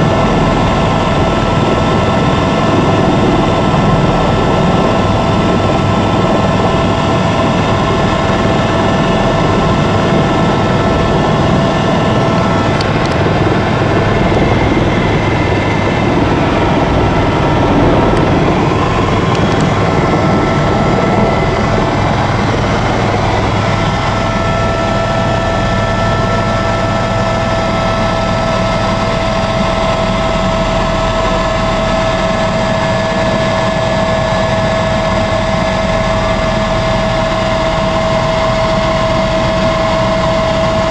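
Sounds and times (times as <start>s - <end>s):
helicopter rotor and engine noise: 0.0s - 40.9s
high turbine whine: 0.0s - 40.9s.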